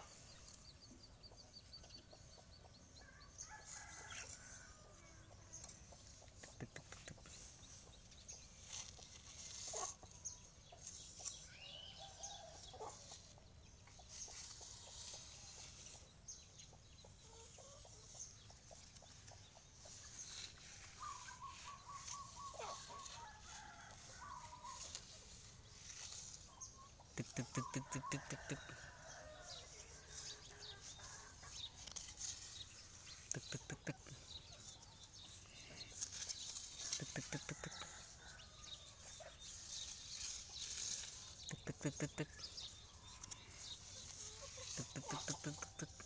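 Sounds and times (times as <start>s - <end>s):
faint chicken clucking: 0.0s - 46.0s.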